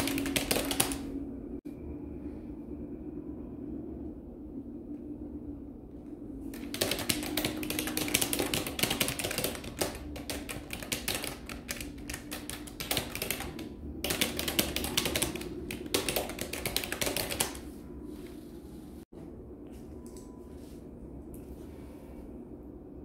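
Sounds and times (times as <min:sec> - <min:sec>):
fast typing on keyboard: 0:00.0 - 0:01.1, 0:06.5 - 0:17.7.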